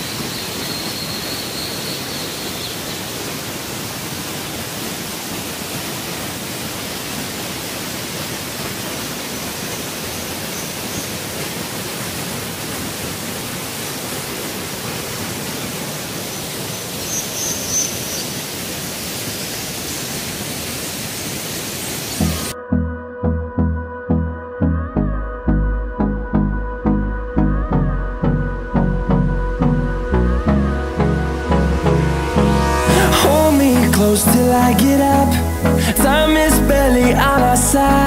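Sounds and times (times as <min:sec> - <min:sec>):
waterfall rushing: 0:00.0 - 0:22.6, 0:30.5 - 0:38.0.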